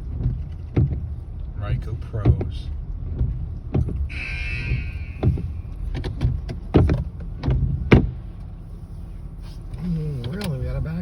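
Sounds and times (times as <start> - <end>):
sharp knocks: 3.2 - 8.2.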